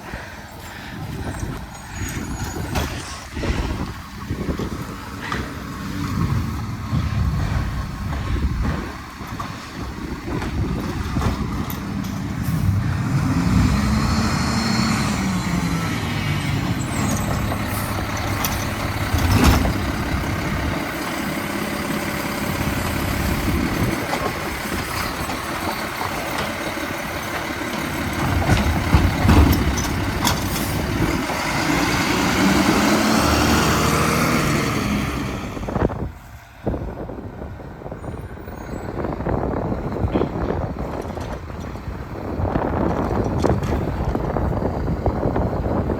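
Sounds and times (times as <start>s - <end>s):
garbage truck diesel engine revving: 1.9s - 36.1s.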